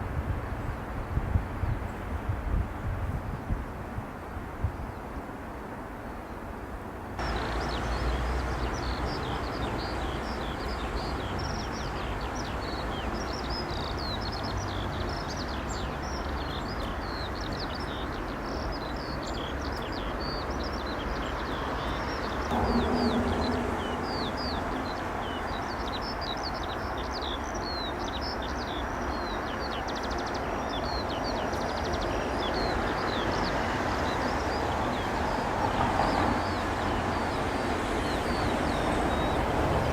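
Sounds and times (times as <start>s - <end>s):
small birds chirping: 7.2s - 39.8s
low rumble: 22.5s - 24.7s.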